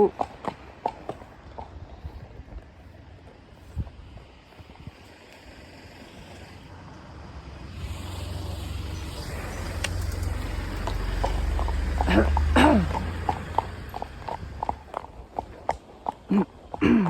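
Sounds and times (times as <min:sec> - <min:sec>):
road vehicle approaching: 0:00.0 - 0:17.0.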